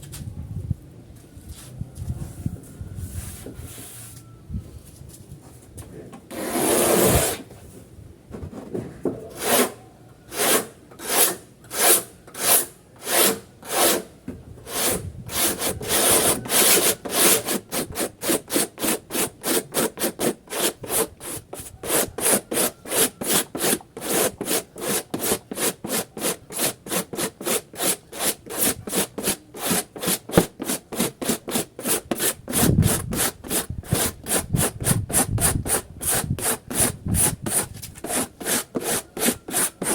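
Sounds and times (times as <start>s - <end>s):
hand sanding plastic: 14.7s - 39.9s.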